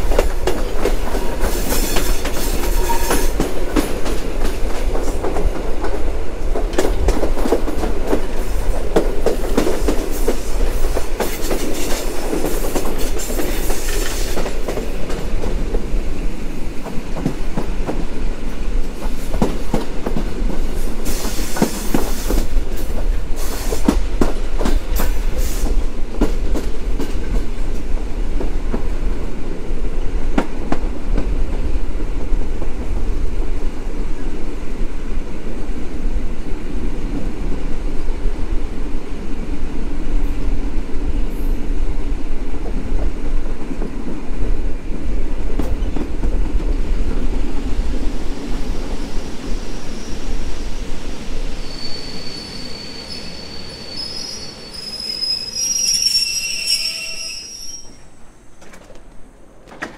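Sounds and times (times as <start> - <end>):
train running rumble: 0.0 - 51.1
wheels clicking over rail joints: 58.6 - 59.9.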